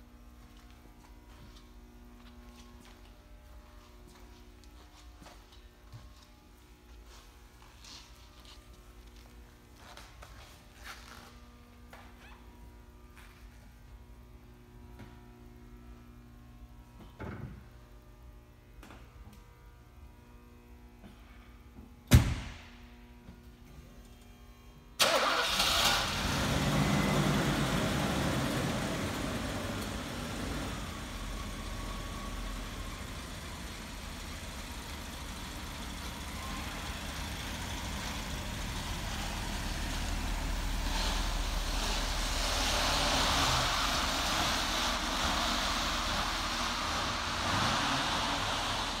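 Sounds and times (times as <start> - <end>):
car engine starting and idling: 25.0 - 49.0.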